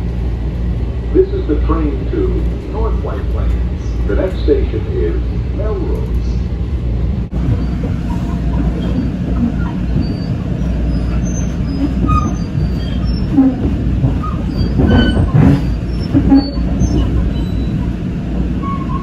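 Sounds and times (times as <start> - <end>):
train wheels rumbling on rail: 0.0 - 19.0
high wheel squeals: 7.5 - 18.0, 18.6 - 19.0.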